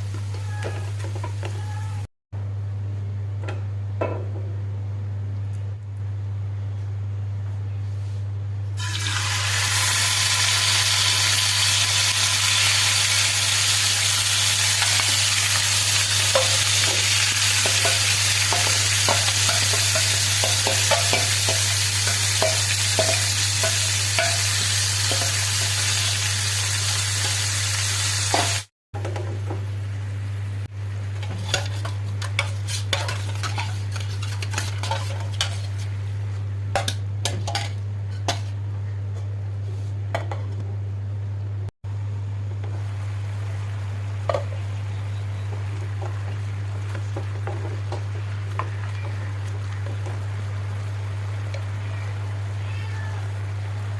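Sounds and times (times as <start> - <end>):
food sizzling in hot oil: 8.8 - 28.7
spoon scraping pan: 31.2 - 36.0.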